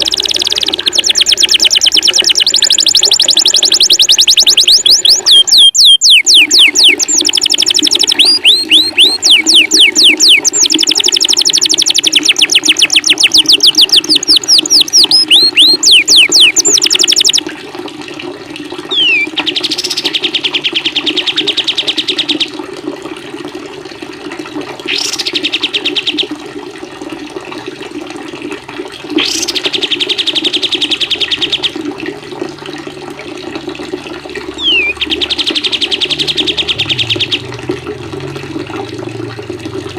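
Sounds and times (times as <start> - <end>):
bird singing high slurred notes: 0.0 - 17.4, 18.9 - 22.5, 24.9 - 26.2, 29.2 - 31.7, 34.6 - 37.5
soft bird trills: 0.0 - 17.4, 18.9 - 22.5, 34.6 - 37.4
running water: 0.0 - 39.9.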